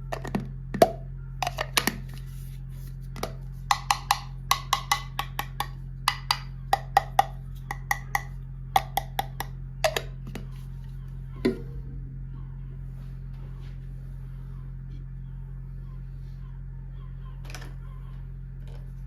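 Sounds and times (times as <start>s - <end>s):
plastic toy pieces tapping: 0.1s - 2.1s, 3.2s - 10.5s.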